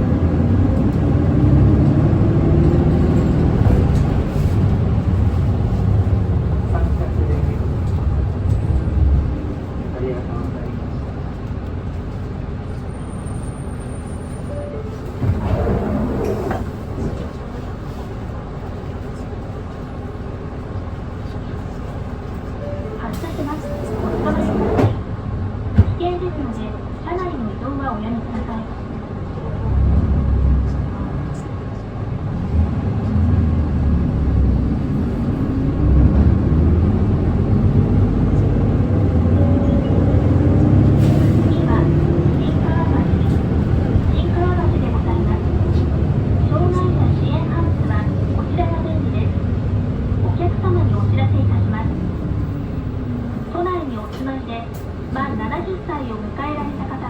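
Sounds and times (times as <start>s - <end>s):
bus diesel engine: 0.0s - 57.0s
road noise: 0.0s - 57.0s.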